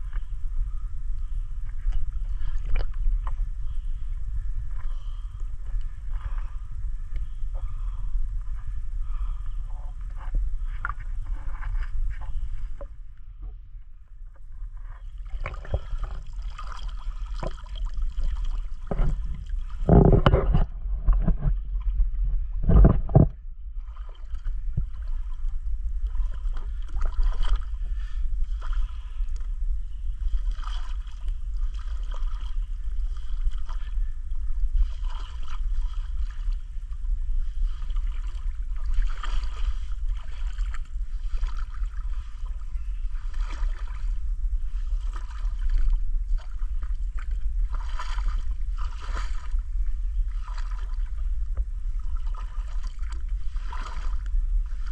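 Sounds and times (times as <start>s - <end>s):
microphone rumble: 0.0s - 54.9s.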